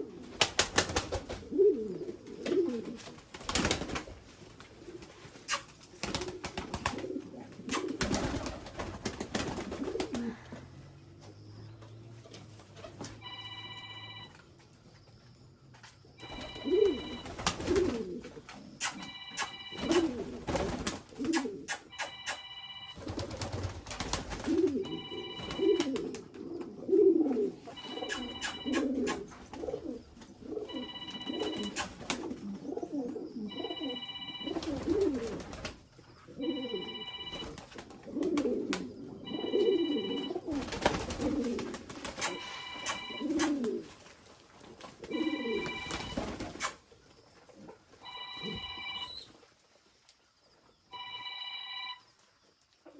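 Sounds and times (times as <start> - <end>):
pigeons cooing: 0.0 - 10.8, 16.2 - 22.4, 23.0 - 44.0, 44.6 - 46.9
short high ringing tone: 18.9 - 20.1, 21.9 - 23.0, 42.2 - 43.3.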